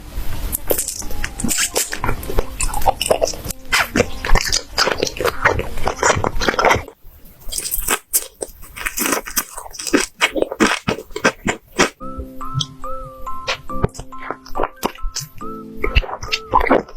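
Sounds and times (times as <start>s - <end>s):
crunchy biting and chewing: 0.7s - 12.0s.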